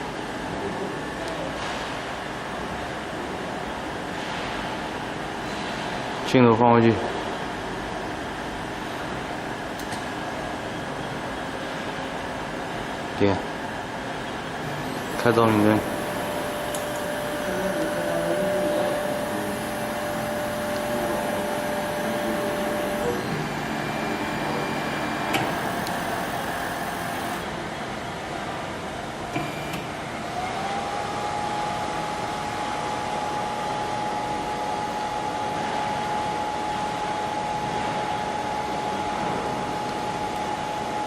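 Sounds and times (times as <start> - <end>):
steady whine: 14.5 - 41.0
higher gliding whine: 14.9 - 27.6.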